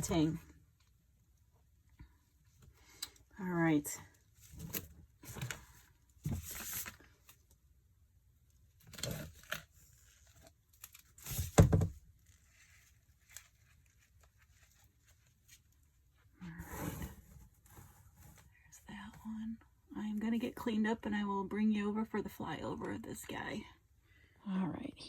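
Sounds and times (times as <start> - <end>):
rustling tearing handling noises: 12.2 - 15.8.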